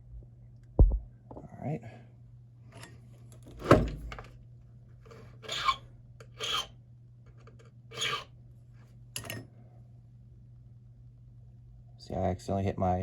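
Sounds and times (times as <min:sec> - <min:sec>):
hand file rasping on key: 0:05.4 - 0:06.7, 0:07.9 - 0:08.3.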